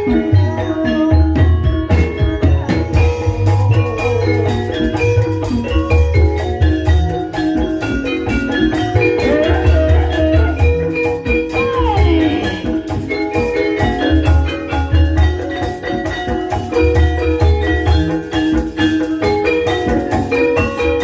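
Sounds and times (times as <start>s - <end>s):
metallophones interlocking melody: 0.0s - 21.0s.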